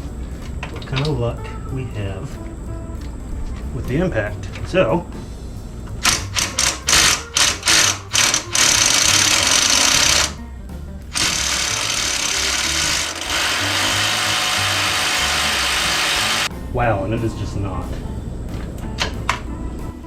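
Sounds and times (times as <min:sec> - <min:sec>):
impact wrench hammering: 0:06.0 - 0:10.4, 0:11.1 - 0:16.5.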